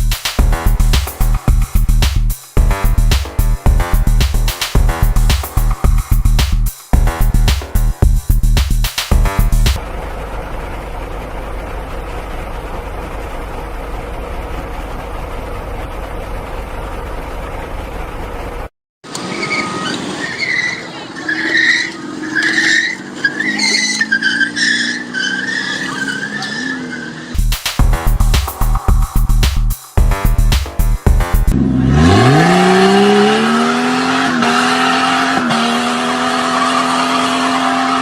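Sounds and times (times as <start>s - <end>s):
car engine and road rumble: 0.0s - 38.0s
tyres squealing: 19.1s - 27.4s.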